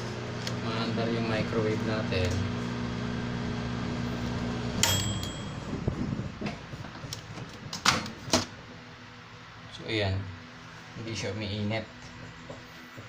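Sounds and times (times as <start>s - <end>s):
microwave oven humming: 0.0s - 8.9s
microwave beep: 4.5s - 6.0s.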